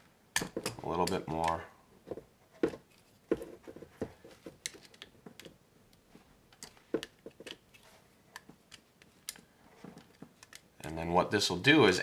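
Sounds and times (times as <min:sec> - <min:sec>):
wire and screwdriver clicking on plastic: 0:00.4 - 0:01.6, 0:04.5 - 0:11.0.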